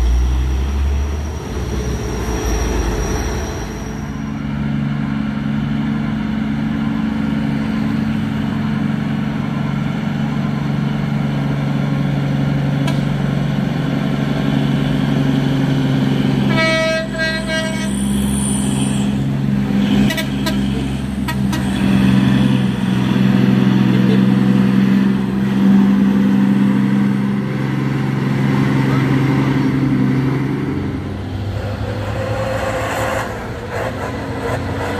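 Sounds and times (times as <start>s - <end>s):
heavy truck engine droning: 0.0s - 34.9s
vehicle horn: 16.5s - 18.0s, 20.0s - 21.8s.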